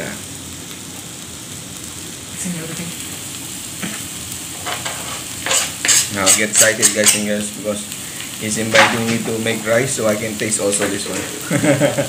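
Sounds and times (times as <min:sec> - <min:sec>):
food sizzling in a pan: 0:00.0 - 0:12.0
spatula stirring in a pan: 0:03.8 - 0:07.3.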